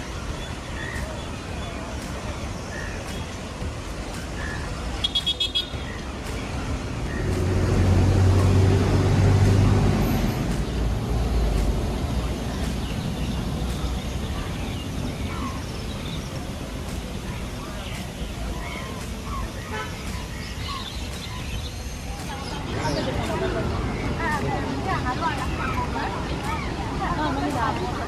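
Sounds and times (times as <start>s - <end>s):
large vehicle engine hum: 0.0s - 28.0s
steady traffic noise: 0.0s - 28.0s.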